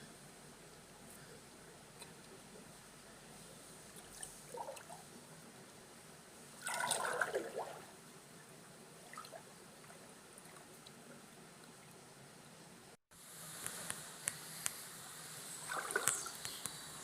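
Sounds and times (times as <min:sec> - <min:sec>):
faint water trickle: 0:00.3 - 0:13.0, 0:14.6 - 0:17.0
water splashing from wading: 0:06.6 - 0:07.9, 0:15.6 - 0:16.5.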